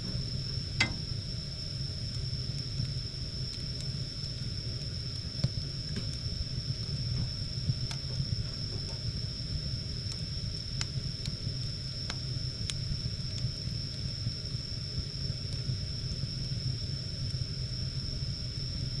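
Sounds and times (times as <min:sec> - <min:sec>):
thin high whine: 0:00.0 - 0:01.6
firewood crackling pops: 0:00.0 - 0:06.3
fire rumble and hiss: 0:00.0 - 0:19.0.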